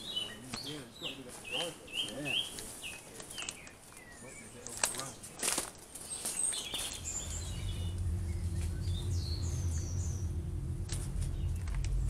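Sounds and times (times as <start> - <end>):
small birds chirping: 0.0 - 12.0
low steady rumble: 6.7 - 12.0.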